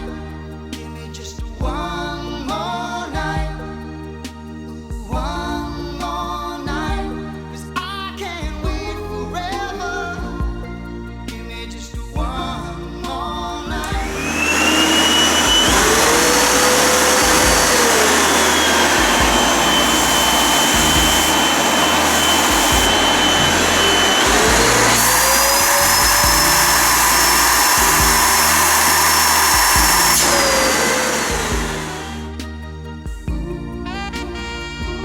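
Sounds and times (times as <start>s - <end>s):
vacuum cleaner running: 13.8s - 32.4s.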